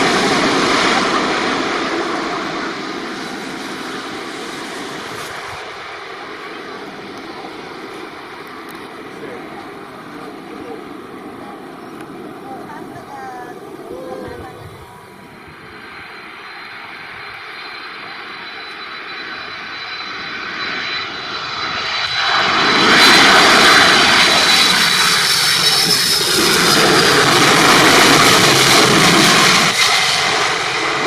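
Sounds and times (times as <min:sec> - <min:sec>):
jet engines roaring: 0:00.0 - 0:31.0
thin high whine: 0:11.9 - 0:22.2.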